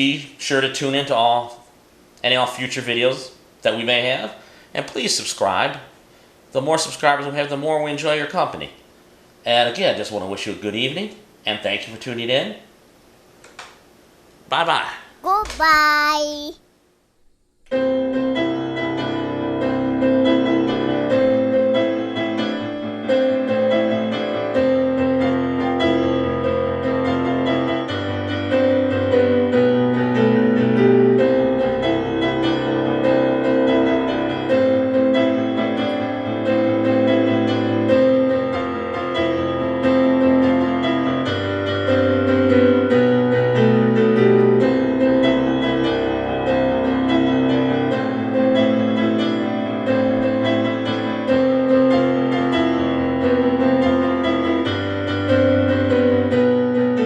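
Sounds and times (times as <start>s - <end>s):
piano background music: 18.5s - 57.0s.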